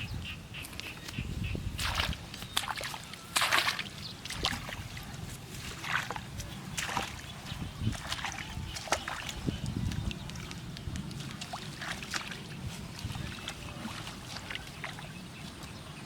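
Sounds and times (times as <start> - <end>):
water splashing and sloshing: 0.2 - 16.0.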